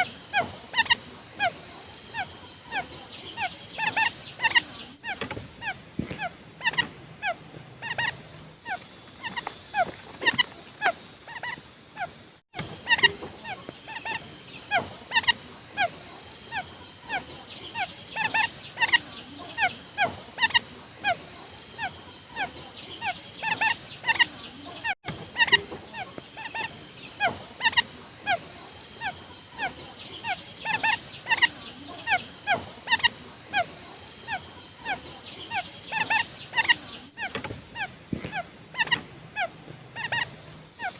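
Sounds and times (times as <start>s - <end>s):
steady high hiss: 0.0s - 24.6s
quail calling: 0.0s - 40.9s.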